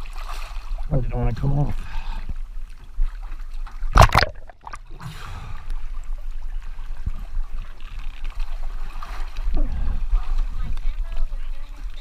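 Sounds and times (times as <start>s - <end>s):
water sloshing: 2.7s - 5.0s
loud water splash: 3.9s - 4.8s.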